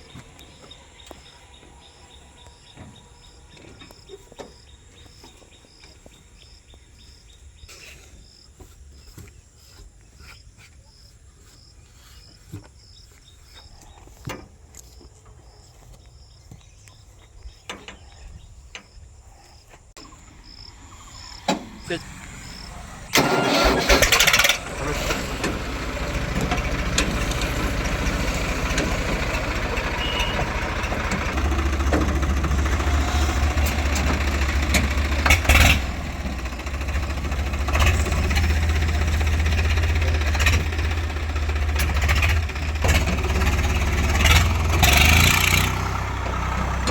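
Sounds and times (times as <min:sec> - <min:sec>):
farm vehicle engine running: 0:00.0 - 0:07.6, 0:20.0 - 0:46.9.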